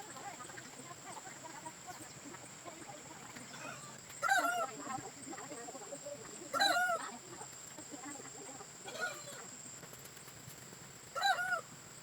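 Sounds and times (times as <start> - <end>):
poultry calling: 3.5 - 4.8, 8.8 - 9.5, 11.1 - 11.7.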